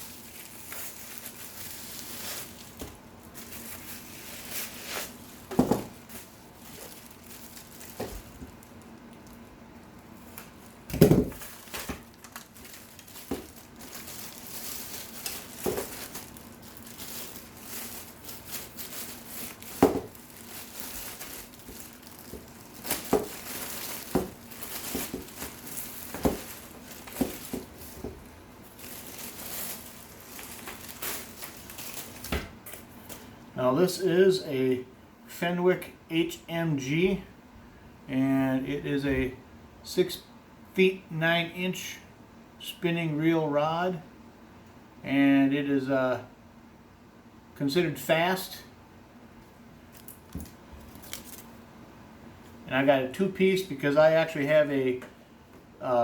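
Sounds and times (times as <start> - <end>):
cardboard and plastic crinkling: 0.0 - 33.2, 49.9 - 51.6
knocks and thumps: 10.9 - 11.5.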